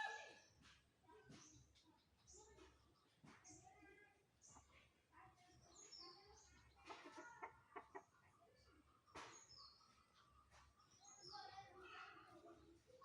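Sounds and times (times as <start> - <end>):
chickens clucking: 5.8 - 11.0.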